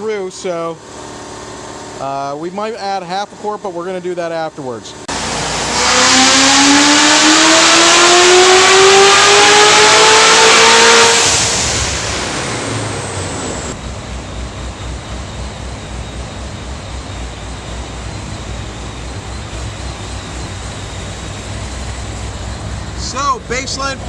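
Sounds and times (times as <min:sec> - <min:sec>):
car engine full-throttle pull: 0:05.1 - 0:13.8.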